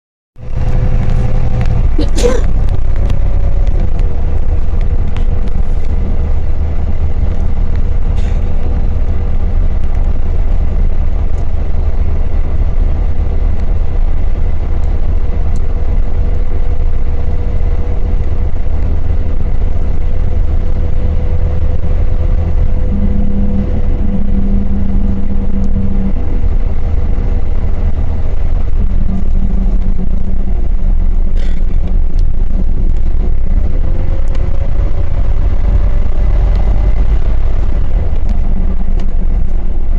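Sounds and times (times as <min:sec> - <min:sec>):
train running at speed: 0:00.4 - 0:39.9.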